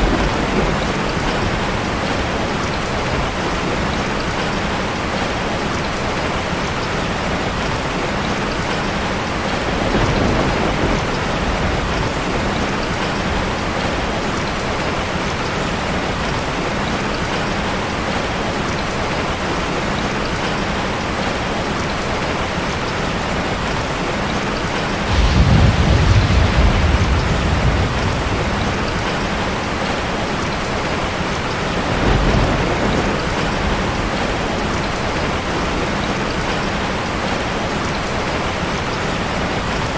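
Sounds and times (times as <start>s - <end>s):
rolling thunder: 0.0s - 5.3s, 9.4s - 15.0s, 24.9s - 36.6s
heavy rain falling: 0.0s - 39.9s.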